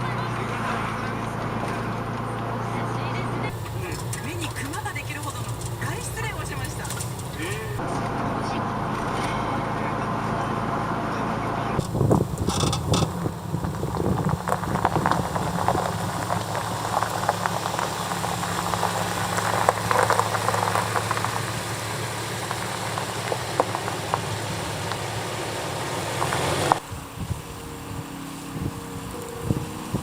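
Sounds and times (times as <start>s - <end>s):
car engine running: 0.0s - 30.0s
crackling clicks: 3.5s - 7.8s, 11.8s - 26.8s.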